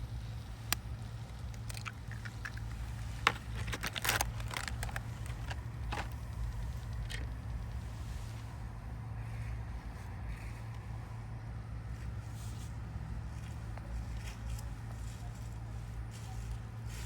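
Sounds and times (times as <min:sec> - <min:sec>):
campfire clicks and crackles: 0:00.0 - 0:08.3
steady low hum: 0:00.0 - 0:17.0.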